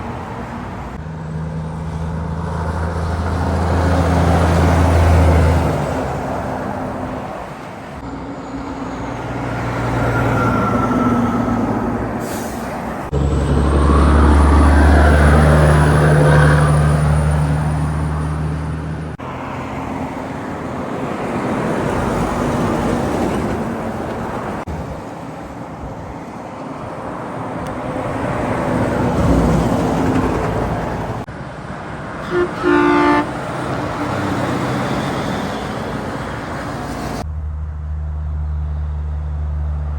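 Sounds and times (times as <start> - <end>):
trucks and traffic passing: 0.0 - 39.9
vehicle horn blasts: 32.2 - 34.1.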